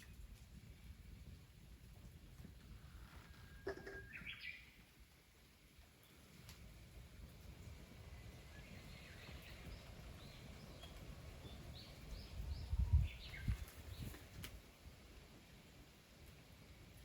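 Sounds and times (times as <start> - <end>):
small birds chirping: 3.4 - 4.8, 8.1 - 14.8.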